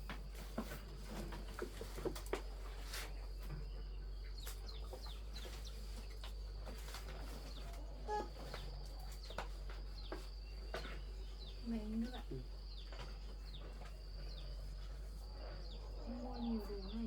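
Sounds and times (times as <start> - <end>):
birds chirping: 3.1 - 17.0.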